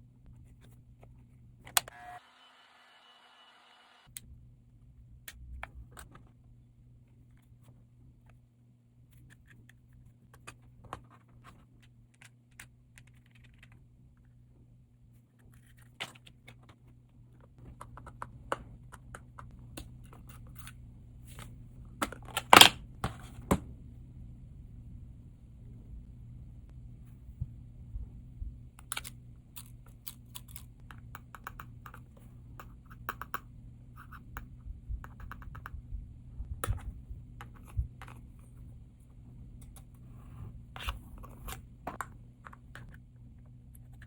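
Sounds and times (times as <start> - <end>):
steady low hum: 22.8 - 44.0.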